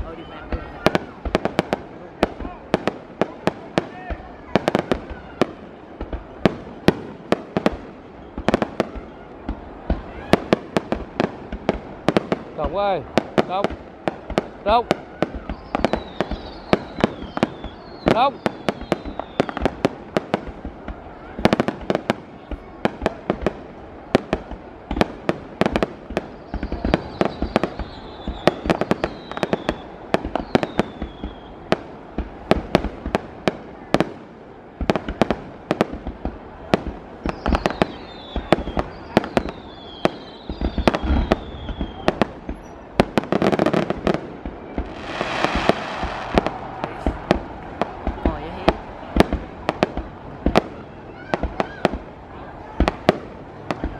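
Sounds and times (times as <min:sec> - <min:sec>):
firework bangs and pops: 0:00.0 - 0:53.9
hissing crackling firework burst: 0:00.0 - 0:53.9
falling firework whistles: 0:14.3 - 0:23.2, 0:24.0 - 0:31.8, 0:36.6 - 0:52.0.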